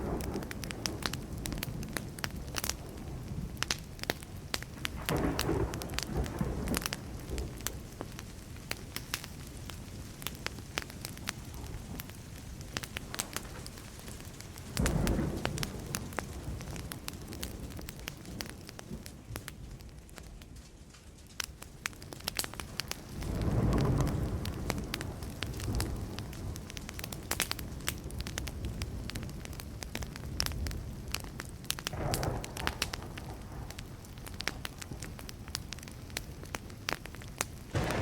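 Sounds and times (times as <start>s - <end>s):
thunder rumbling: 0.0s - 8.8s, 13.0s - 19.0s, 22.6s - 29.0s, 31.8s - 36.7s, 37.7s - 38.0s
wood fire crackling and popping: 0.0s - 38.0s.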